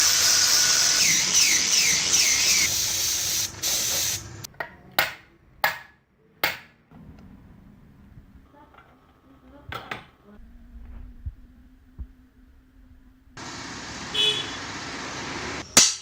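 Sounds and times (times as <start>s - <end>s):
loud steady hiss: 0.0s - 4.5s, 13.4s - 15.8s.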